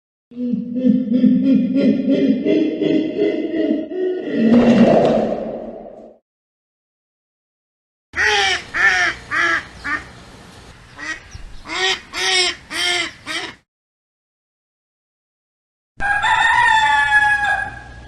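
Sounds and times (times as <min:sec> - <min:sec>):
bird calling: 0:08.2 - 0:10.2, 0:10.8 - 0:13.6.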